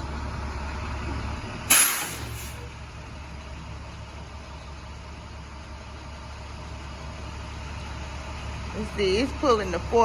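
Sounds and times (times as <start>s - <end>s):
truck engine idling: 0.0s - 10.0s
sudden loud burst of noise: 1.7s - 2.6s.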